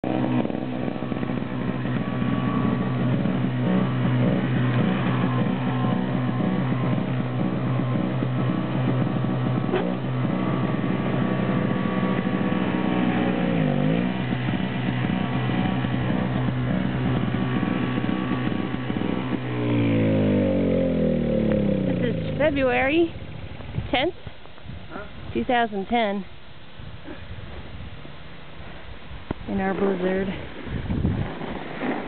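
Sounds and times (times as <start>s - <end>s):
engine running: 0.0s - 24.1s.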